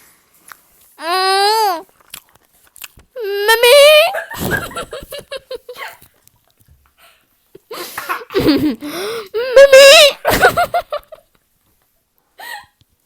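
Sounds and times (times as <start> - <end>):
child's high-pitched vocal sounds: 1.0 - 1.9, 3.2 - 4.2
chewing and crunching: 1.8 - 3.2.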